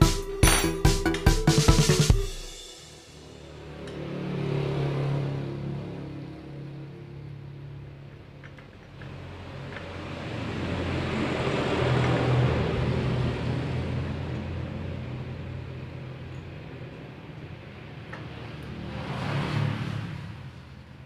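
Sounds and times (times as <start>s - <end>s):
engine running: 2.5s - 18.8s.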